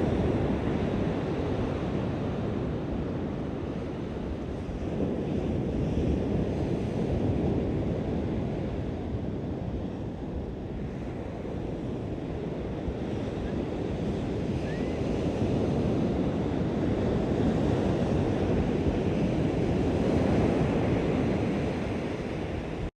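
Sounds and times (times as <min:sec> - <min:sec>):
waves washing onto beach: 0:00.0 - 0:22.9
wind buffeting microphone: 0:00.0 - 0:22.9.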